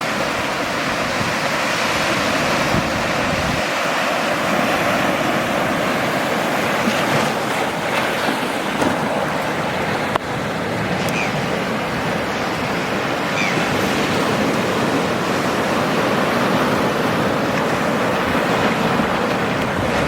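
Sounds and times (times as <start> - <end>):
ocean waves rushing: 0.0 - 20.0
wind: 0.0 - 20.0.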